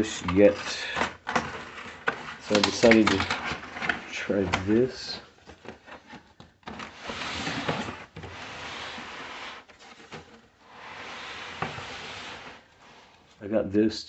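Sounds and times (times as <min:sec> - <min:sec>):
cardboard rubbing and sliding: 0:00.0 - 0:13.4.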